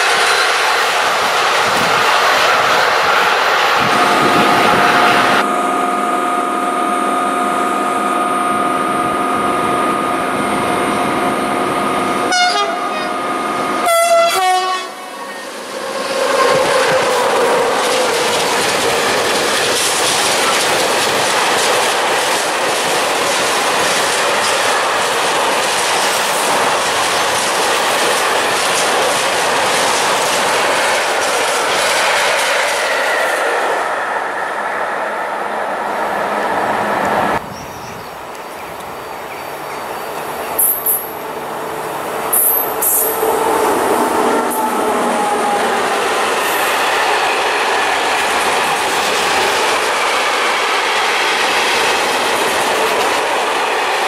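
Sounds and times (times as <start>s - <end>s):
locomotive humming: 0.0s - 54.0s
train horn blasts: 3.8s - 10.1s, 12.1s - 15.2s.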